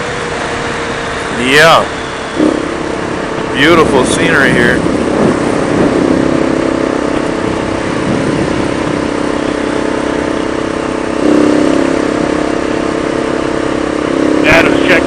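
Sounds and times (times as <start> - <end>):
motorcycle engine cruising: 0.0 - 15.0
wind rush over microphone: 2.4 - 12.7.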